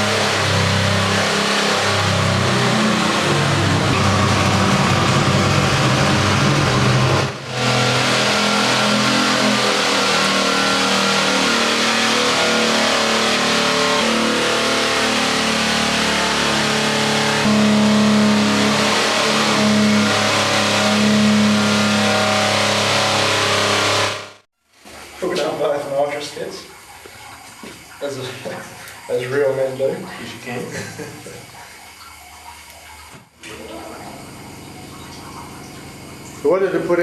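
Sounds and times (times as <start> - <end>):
engine running hard under load: 0.0 - 24.4.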